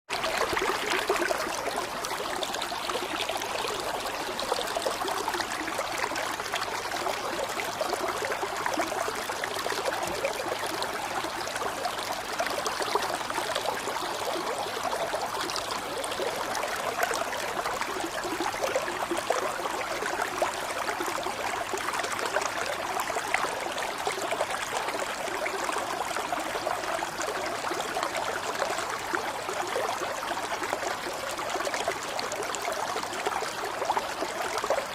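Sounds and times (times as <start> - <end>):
running water flowing: 0.1 - 19.6.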